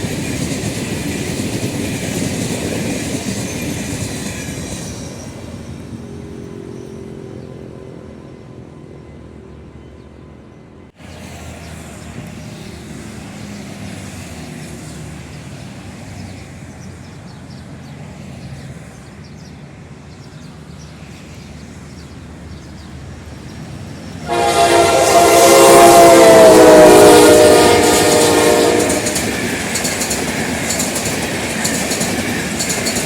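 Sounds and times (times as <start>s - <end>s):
train rumbling: 0.0s - 33.0s
locomotive air horn: 24.2s - 29.3s.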